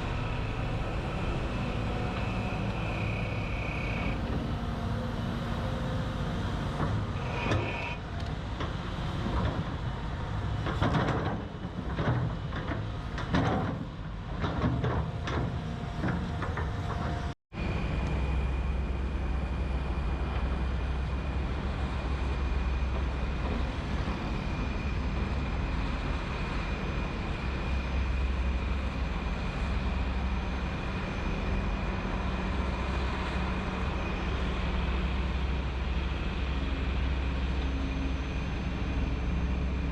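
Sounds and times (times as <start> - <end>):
high-pitched whine: 0.0 - 8.3
diesel construction machinery running: 0.0 - 39.9
machine engine droning: 0.0 - 39.9.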